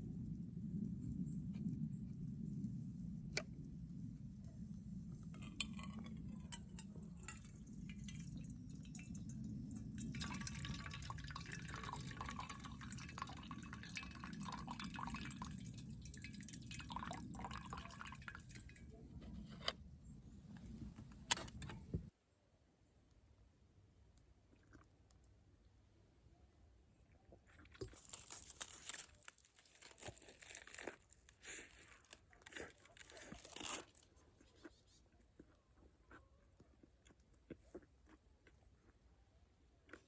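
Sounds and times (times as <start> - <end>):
low steady rumble: 0.0 - 22.1
coffee pouring into a cup: 4.2 - 19.4.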